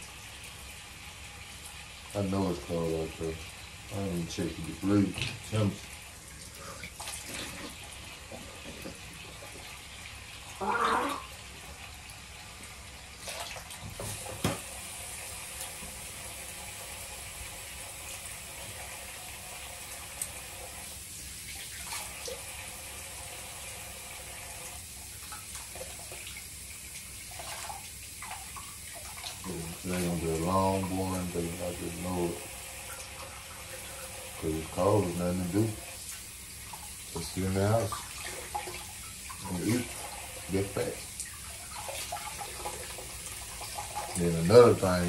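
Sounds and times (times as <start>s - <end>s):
water running from tap into sink: 0.0s - 45.0s.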